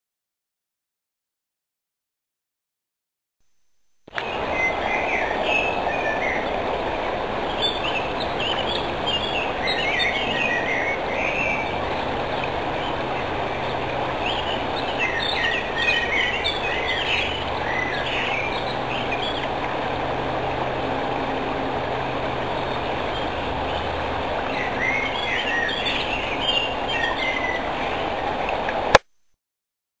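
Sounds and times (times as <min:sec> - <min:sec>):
steady rushing noise: 0:04.1 - 0:29.1
small birds chirping: 0:07.5 - 0:11.7, 0:12.8 - 0:19.6, 0:24.5 - 0:27.7.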